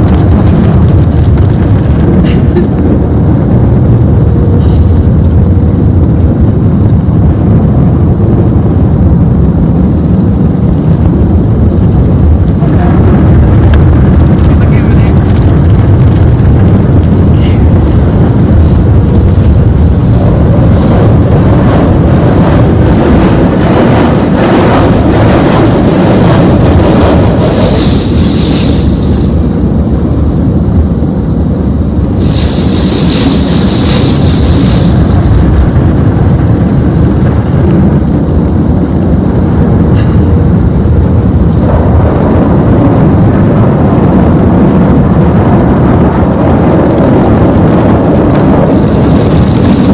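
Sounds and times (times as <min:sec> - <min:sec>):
car wash machinery rumbling: 0:00.0 - 0:49.9
water spray hiss: 0:27.4 - 0:29.5, 0:32.1 - 0:35.6.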